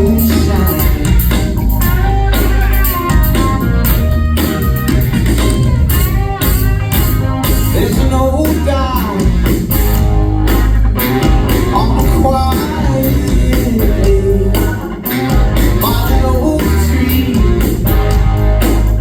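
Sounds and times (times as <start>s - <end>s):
person singing: 0.0s - 1.4s, 7.6s - 9.4s, 11.5s - 17.8s
bass guitar: 0.0s - 19.0s
drum beat: 0.0s - 19.0s
electric guitar: 0.0s - 19.0s.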